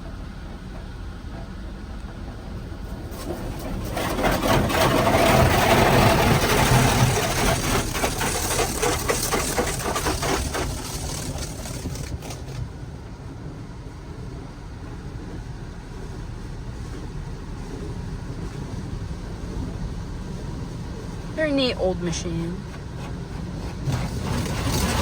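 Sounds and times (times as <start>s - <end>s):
car wash rumble: 0.0s - 25.0s
car wash water spray hissing: 6.3s - 12.6s, 20.3s - 25.0s.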